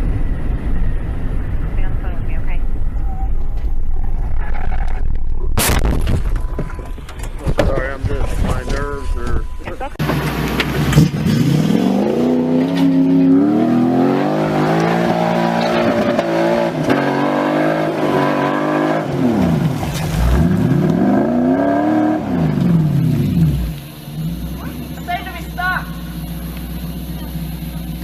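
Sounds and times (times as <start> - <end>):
car engine revving: 6.8 - 28.0.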